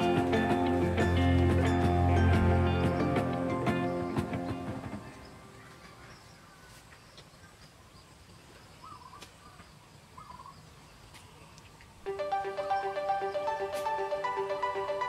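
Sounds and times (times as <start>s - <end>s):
background music: 0.0s - 5.6s, 12.1s - 15.0s
faint outdoor ambience: 0.0s - 15.0s
bird chirps: 2.7s - 11.7s.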